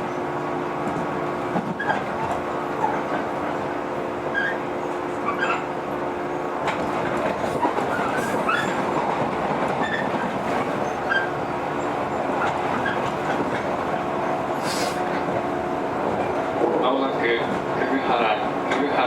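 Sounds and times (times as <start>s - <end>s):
train rolling noise: 0.0s - 19.0s
wheels squeaking: 1.6s - 3.6s, 4.3s - 5.8s, 6.7s - 15.0s.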